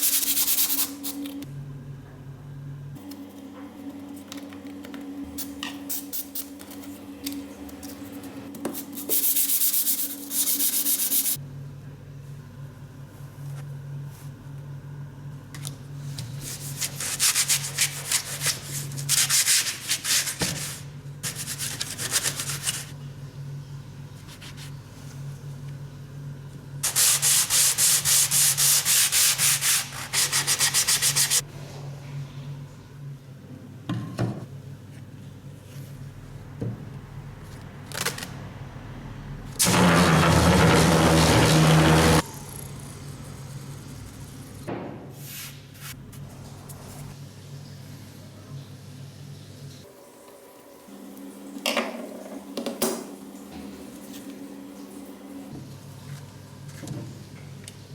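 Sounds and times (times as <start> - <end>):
sandpaper rubbing a surface: 8.8 - 11.4, 16.3 - 23.0, 26.8 - 31.4, 39.6 - 42.2
steady low hum: 20.6 - 49.6.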